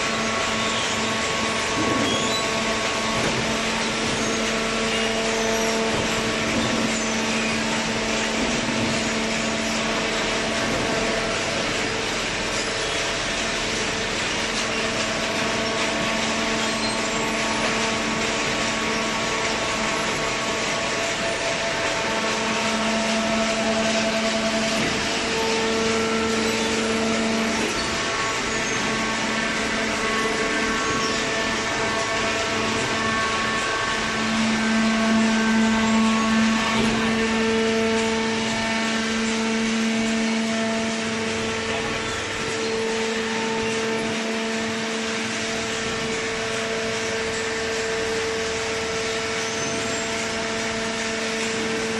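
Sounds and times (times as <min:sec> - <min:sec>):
baler machine hum: 0:00.0 - 0:51.9.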